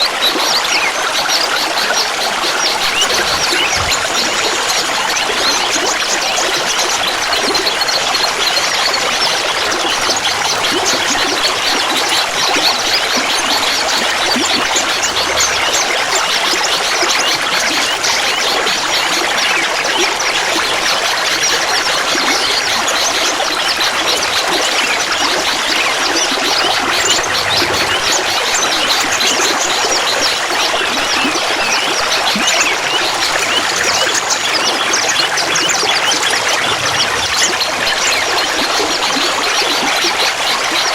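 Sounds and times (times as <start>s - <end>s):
water trickling and babbling: 0.0s - 40.9s.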